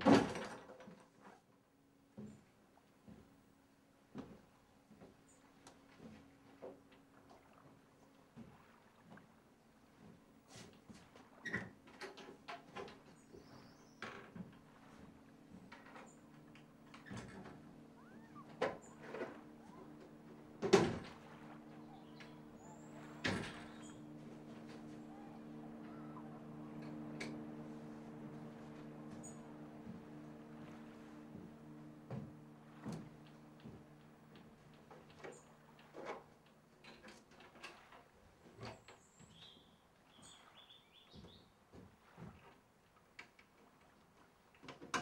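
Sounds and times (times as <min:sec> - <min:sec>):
faint knocks and creaks: 0:10.0 - 0:30.8
steady low hum: 0:13.0 - 0:36.7
whistled bird call: 0:17.9 - 0:20.1, 0:21.7 - 0:27.4
high bird chirps: 0:18.0 - 0:19.0, 0:21.7 - 0:24.1, 0:24.9 - 0:26.9.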